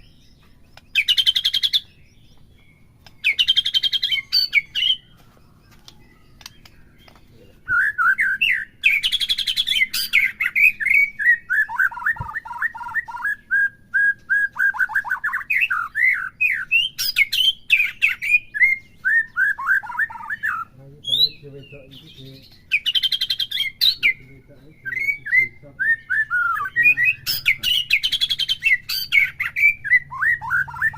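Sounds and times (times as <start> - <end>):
bird buzzy chattering: 0.0 - 5.1, 5.8 - 13.4, 19.4 - 30.9
bird whistled notes: 5.8 - 30.9.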